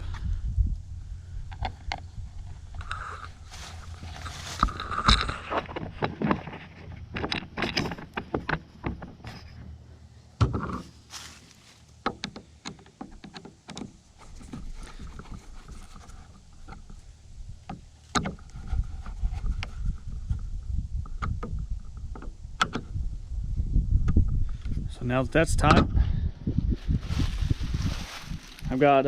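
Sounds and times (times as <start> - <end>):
low rumble: 0.0 - 7.2, 18.4 - 28.8
clicks knocks and scrapes: 1.5 - 9.7, 10.4 - 11.4, 12.0 - 22.9.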